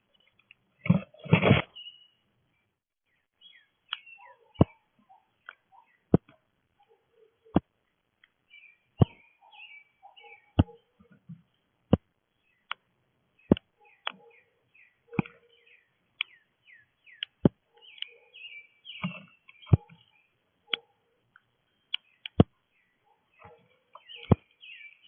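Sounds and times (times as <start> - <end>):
small birds chirping: 0.0 - 25.0
sharp taps and knocks: 10.6 - 12.1, 13.5 - 14.2, 23.4 - 24.5.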